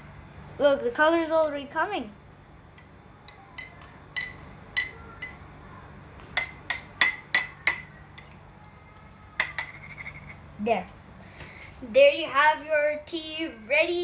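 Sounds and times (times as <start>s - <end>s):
spoon clinking in a cup: 3.3s - 5.4s, 6.4s - 8.4s, 9.4s - 10.4s.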